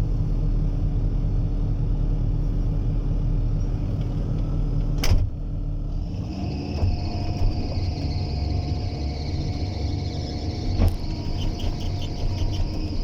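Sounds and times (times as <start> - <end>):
excavator diesel engine running: 0.0 - 13.0
high steady whine: 6.4 - 13.0.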